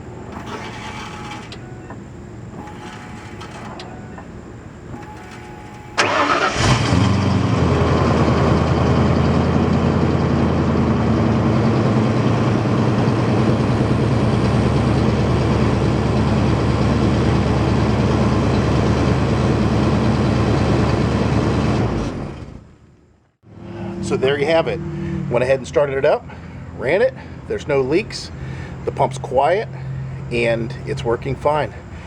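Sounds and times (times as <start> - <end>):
engine starting and idling: 0.0 - 4.2, 4.8 - 22.7.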